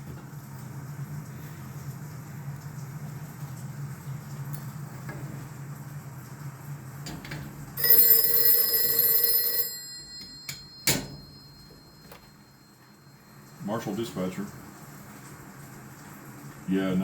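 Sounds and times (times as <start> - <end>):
telephone bell ringing: 7.8 - 13.6.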